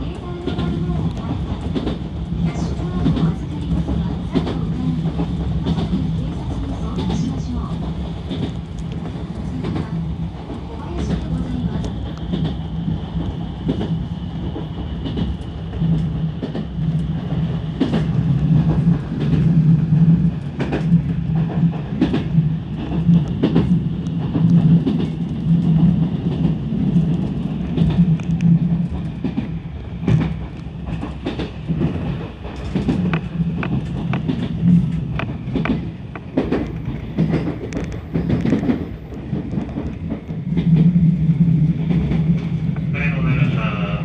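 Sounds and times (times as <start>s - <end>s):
train low hum: 0.0s - 44.0s
wheels clacking over rails: 28.9s - 41.0s.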